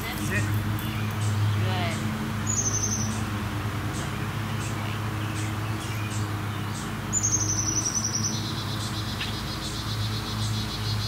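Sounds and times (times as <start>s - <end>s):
birdsong chirps and trills: 0.0s - 11.0s.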